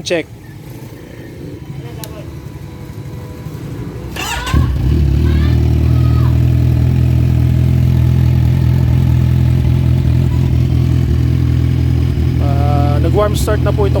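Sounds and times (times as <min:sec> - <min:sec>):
motorcycle engine idling: 0:04.1 - 0:14.0.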